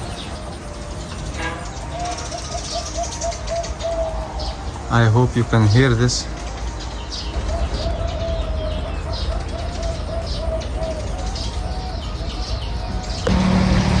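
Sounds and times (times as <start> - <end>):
birds singing: 0.0 - 14.0
high bird chirps: 0.0 - 14.0
low steady hum: 13.2 - 14.0.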